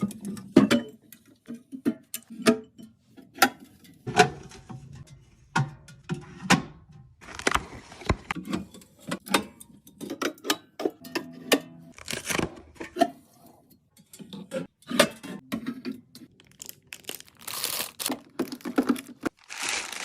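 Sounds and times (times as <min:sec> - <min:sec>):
containers clicking and knocking: 0:18.1 - 0:20.0.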